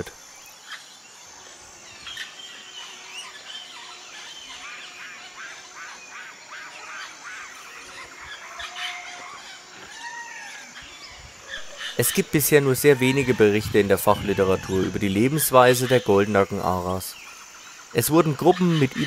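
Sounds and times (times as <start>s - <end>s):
birds chirping: 0.0s - 19.0s
long arching bird call: 0.0s - 19.0s.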